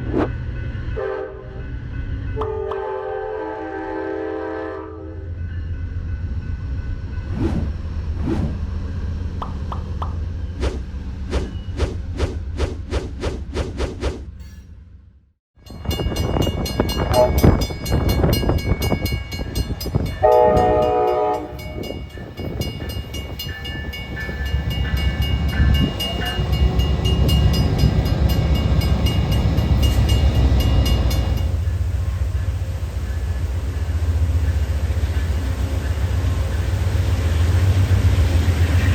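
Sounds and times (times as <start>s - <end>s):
train rumbling past: 0.0s - 38.9s
train horn blast: 0.9s - 1.6s, 2.4s - 5.4s, 17.0s - 17.7s, 19.8s - 22.1s.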